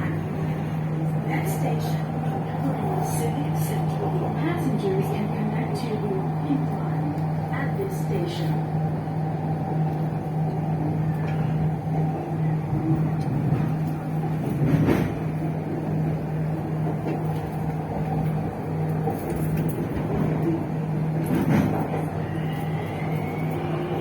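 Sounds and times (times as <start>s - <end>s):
metro train running: 0.0s - 24.0s
train clatter: 9.8s - 24.0s.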